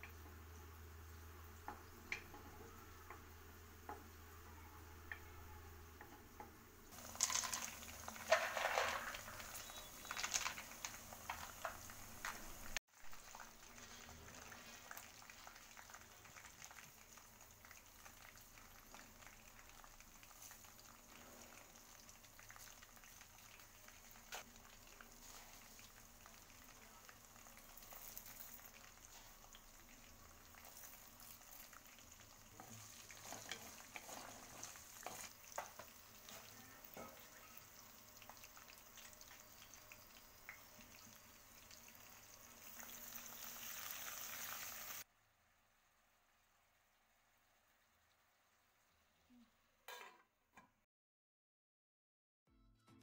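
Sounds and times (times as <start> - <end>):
light ticks of frying seeds: 0.0 - 4.4, 5.9 - 45.1
chillies sizzling in hot oil: 0.0 - 50.2
wooden spatula stirring: 7.0 - 15.5, 32.5 - 37.5.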